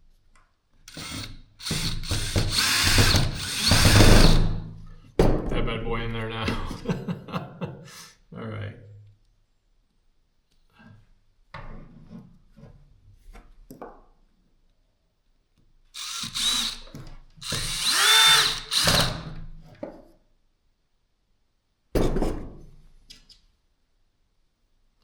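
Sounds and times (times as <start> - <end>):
cordless drill motor whining: 0.9 - 4.5, 16.0 - 19.4.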